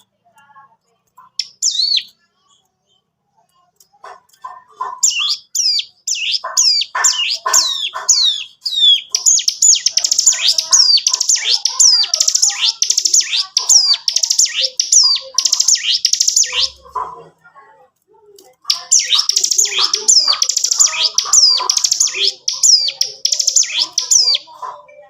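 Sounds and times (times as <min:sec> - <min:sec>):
bird singing rapid high notes: 0:01.2 - 0:02.3, 0:05.0 - 0:16.9, 0:18.6 - 0:24.6.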